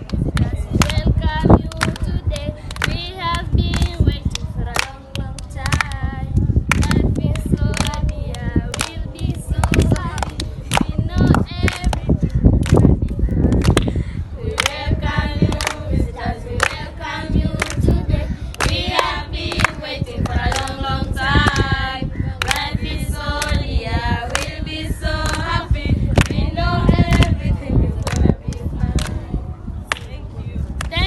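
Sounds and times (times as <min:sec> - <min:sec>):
group of voices singing: 0:00.0 - 0:29.4
sharp hand claps: 0:01.7 - 0:06.0, 0:09.6 - 0:13.9, 0:18.5 - 0:20.8, 0:25.2 - 0:25.5, 0:29.9 - 0:30.1.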